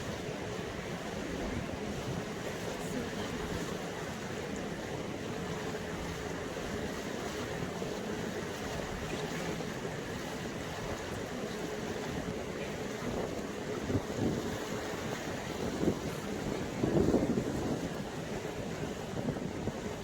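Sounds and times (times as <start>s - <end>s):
boat engine hum: 0.0s - 20.0s
water rushing past hull: 0.0s - 20.0s
wind on microphone: 4.8s - 20.0s.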